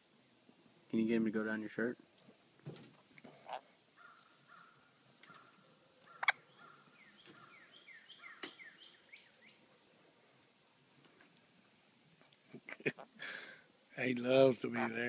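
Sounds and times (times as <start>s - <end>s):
small bird chirping: 4.0s - 9.6s.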